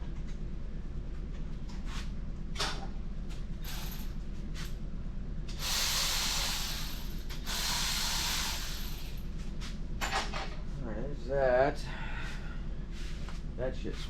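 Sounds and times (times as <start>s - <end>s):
steady low hum: 0.0s - 14.0s
hissing spray: 5.6s - 6.8s.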